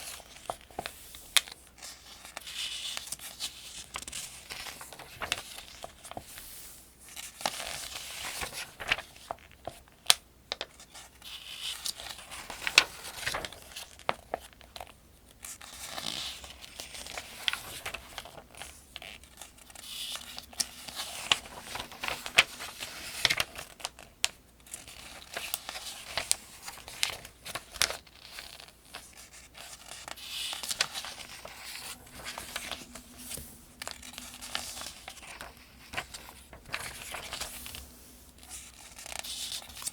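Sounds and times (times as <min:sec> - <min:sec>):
paper pages turning: 0:00.0 - 0:39.9.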